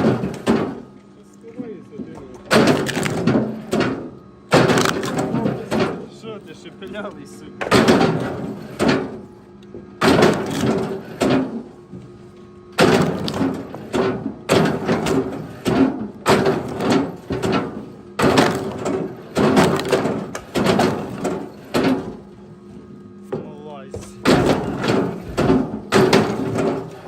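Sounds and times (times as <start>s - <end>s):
heavy wooden knocks and thuds: 12.8s - 22.2s, 23.3s - 27.0s.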